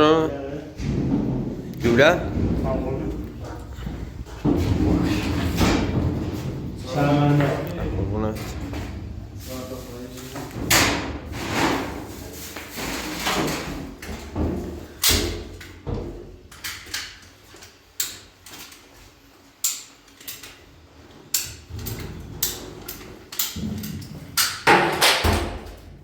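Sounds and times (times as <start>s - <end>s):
hard objects knocking and clattering: 0.7s - 9.3s, 21.6s - 25.9s.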